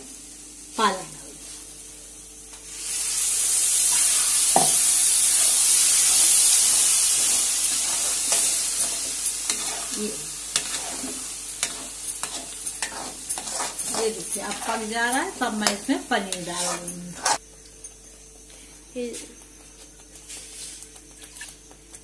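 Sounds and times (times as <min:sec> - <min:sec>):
loud sizzle in hot oil: 0:00.0 - 0:17.4
spoon scraping and clicking: 0:07.6 - 0:17.4.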